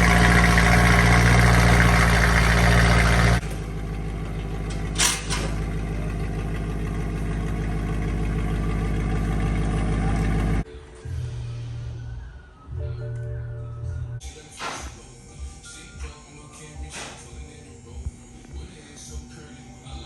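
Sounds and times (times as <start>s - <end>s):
car engine droning and idling: 0.0s - 10.6s.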